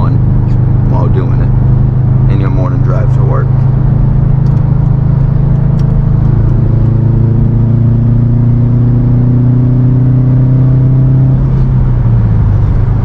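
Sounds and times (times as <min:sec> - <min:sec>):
car engine pulling: 0:00.0 - 0:13.0
tyre and road noise: 0:00.0 - 0:13.0.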